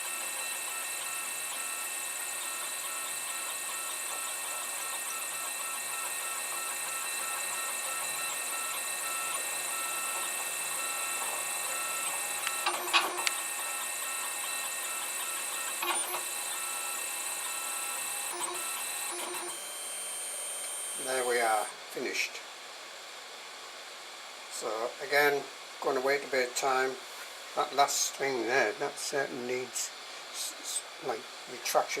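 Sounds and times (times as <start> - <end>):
stepper motors whirring: 0.0 - 21.7.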